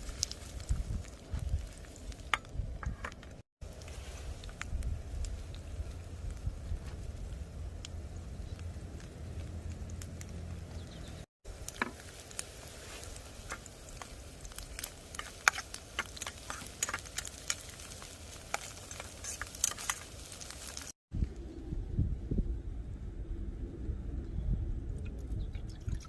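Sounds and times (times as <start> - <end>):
campfire pops and crackles: 0.0 - 21.0
low steady rumble: 3.7 - 11.6, 21.2 - 26.0
faint sizzling hiss: 11.5 - 21.0.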